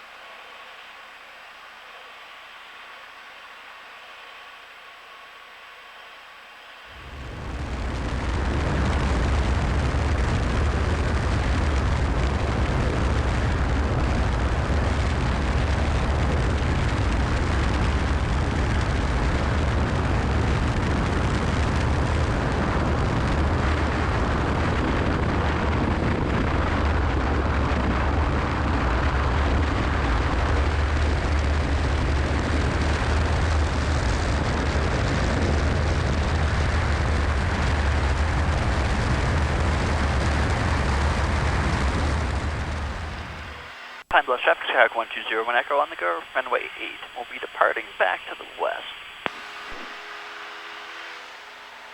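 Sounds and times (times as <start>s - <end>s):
airplane engine and propeller: 7.0s - 11.7s.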